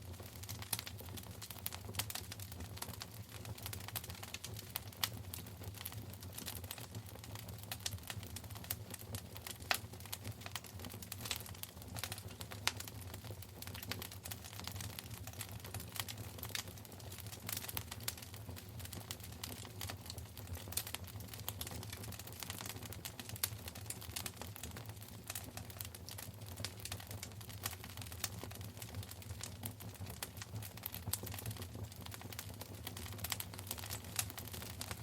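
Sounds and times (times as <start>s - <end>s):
low steady fire rumble: 0.0s - 35.0s
wood fire crackling and popping: 0.0s - 35.0s.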